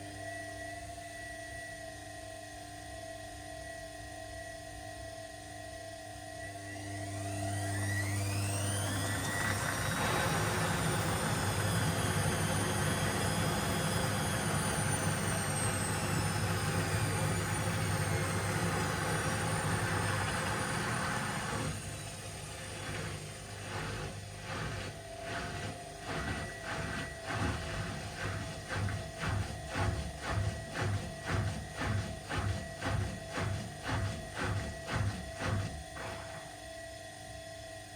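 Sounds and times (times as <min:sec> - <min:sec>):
washing machine spinning: 0:07.1 - 0:36.8.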